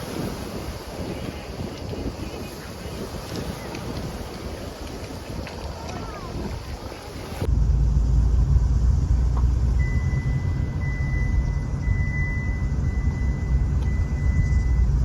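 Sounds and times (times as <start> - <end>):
car rumbling on the move: 7.4 - 15.0.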